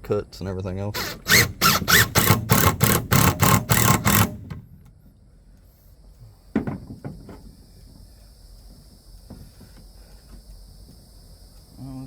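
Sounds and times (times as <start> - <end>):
cordless drill driving screw: 1.0 - 4.6.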